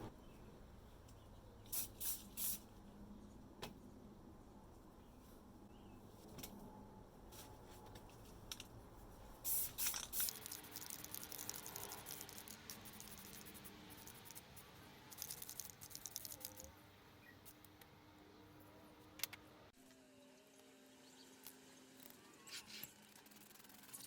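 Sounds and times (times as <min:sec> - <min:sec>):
small hard parts clicking: 0:09.5 - 0:14.4, 0:15.1 - 0:16.7.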